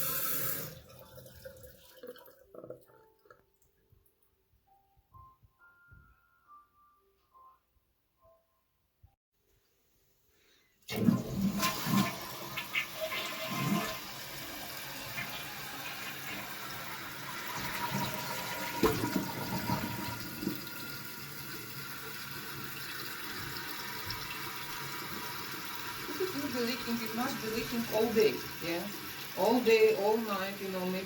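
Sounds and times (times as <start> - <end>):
toilet flushing: 0.0 - 2.9, 10.9 - 31.0
water refilling tank: 0.0 - 3.4, 10.9 - 31.0.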